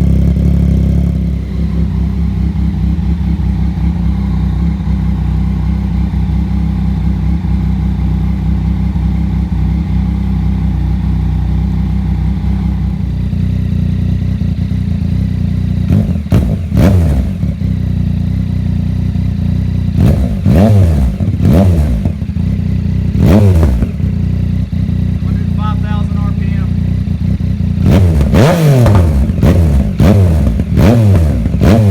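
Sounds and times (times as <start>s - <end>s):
engine revving: 0.0s - 31.9s
motorcycle engine idling: 0.0s - 31.9s.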